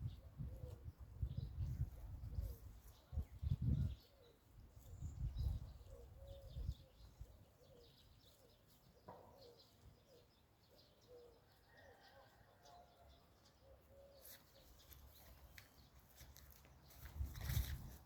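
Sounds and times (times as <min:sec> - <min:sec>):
low repeated bird calls: 0:00.0 - 0:12.5.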